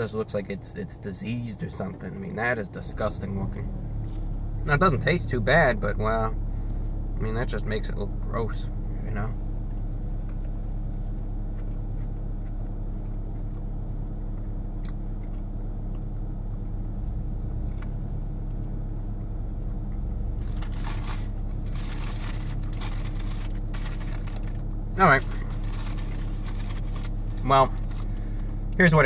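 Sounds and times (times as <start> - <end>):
car idling hum: 0.0 - 29.0
faint chewing clicks: 11.2 - 20.0
crackly paper rustling: 20.4 - 28.2.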